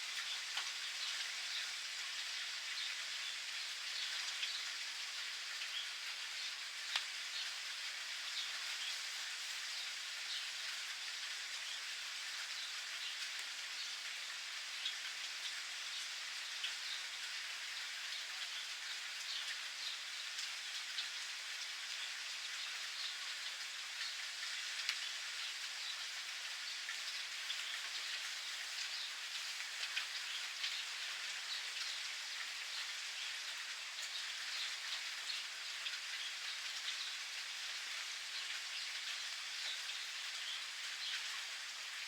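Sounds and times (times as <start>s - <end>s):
raindrops tapping on surfaces: 0.0s - 1.4s, 4.0s - 9.0s, 18.1s - 41.8s
steady rain hissing: 0.0s - 42.0s.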